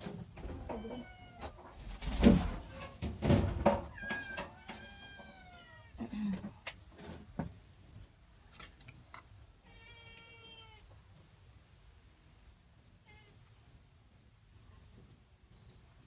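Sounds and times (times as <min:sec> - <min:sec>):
cat meowing: 0:00.7 - 0:01.6, 0:03.9 - 0:06.0, 0:09.6 - 0:10.9.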